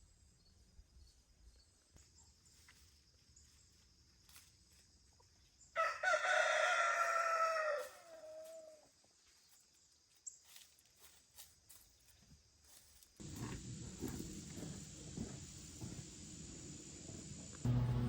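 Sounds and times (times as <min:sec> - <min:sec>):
rooster crowing: 0:05.8 - 0:08.8.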